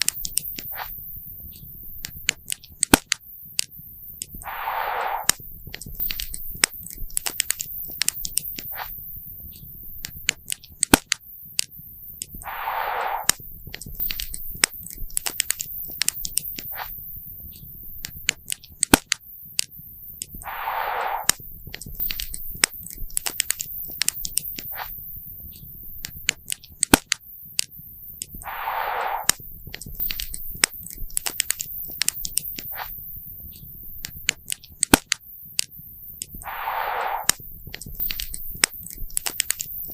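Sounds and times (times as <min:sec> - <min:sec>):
short hiss bursts: 0:04.4 - 0:05.5, 0:12.4 - 0:13.5, 0:20.4 - 0:21.4, 0:28.4 - 0:31.0, 0:36.4 - 0:39.8.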